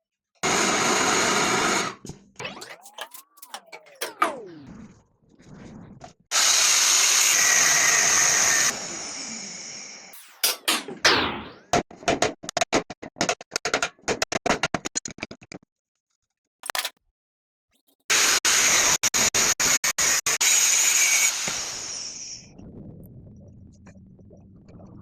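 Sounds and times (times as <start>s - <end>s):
power tool bursts: 1.6s - 4.5s
hissing grinding noise: 2.4s - 4.6s.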